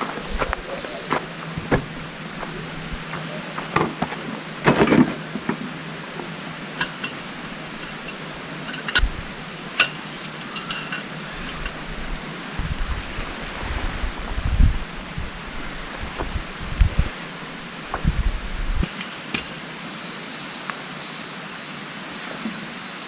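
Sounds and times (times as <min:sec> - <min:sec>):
insects buzzing: 0:00.0 - 0:12.6, 0:18.8 - 0:23.0.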